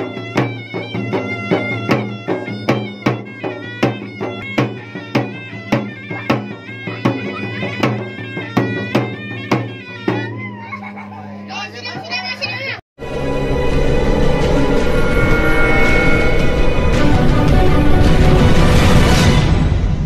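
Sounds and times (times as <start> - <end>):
reedy wind instrument melody: 0.0 - 11.7, 13.0 - 19.8
drumming: 0.0 - 12.8, 13.6 - 20.0
steady drone: 13.0 - 19.9.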